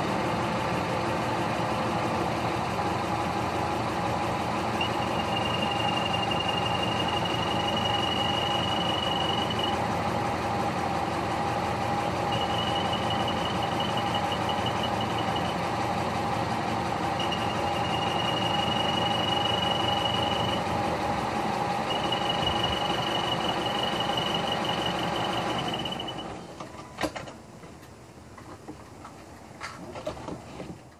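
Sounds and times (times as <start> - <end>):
car engine idling: 0.0 - 26.5
high-pitched whine: 4.7 - 9.9, 12.0 - 15.7, 17.1 - 20.8, 21.8 - 26.4.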